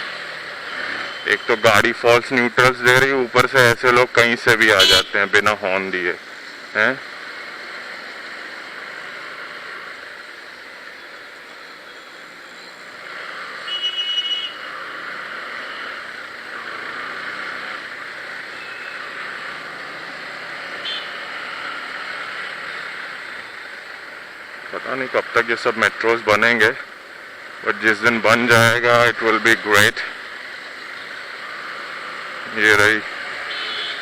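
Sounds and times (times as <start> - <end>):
wind and road rush: 0.0 - 34.0
vehicle horn beeps: 4.7 - 5.4, 13.6 - 14.6, 18.6 - 19.0, 20.8 - 21.1, 33.5 - 34.0.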